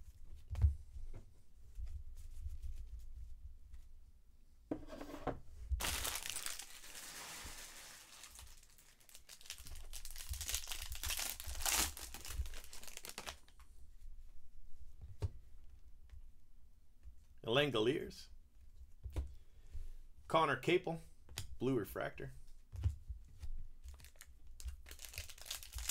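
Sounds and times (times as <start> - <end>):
foil wrapper tearing and crinkling: 5.8 - 13.6, 23.9 - 25.9.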